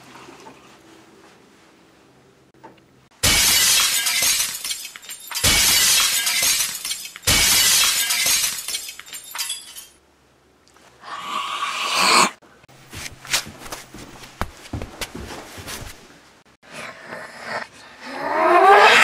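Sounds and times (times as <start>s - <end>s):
glass shattering: 3.2s - 10.0s.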